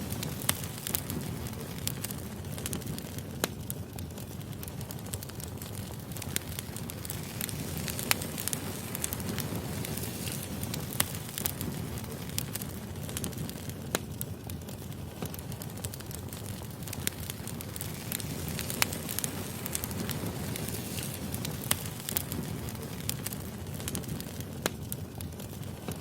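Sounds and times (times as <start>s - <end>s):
firewood crackling and popping: 0.0s - 26.0s
low rumble of flames: 0.0s - 26.0s.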